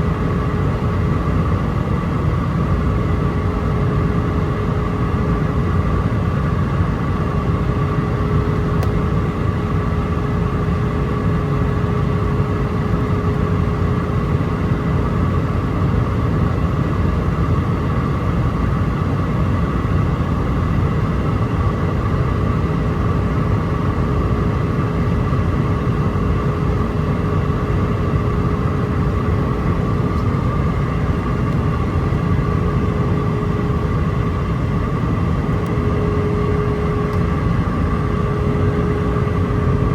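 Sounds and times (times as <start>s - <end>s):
engine and airflow rumble: 0.0s - 39.9s
steady cabin hum: 19.6s - 39.9s.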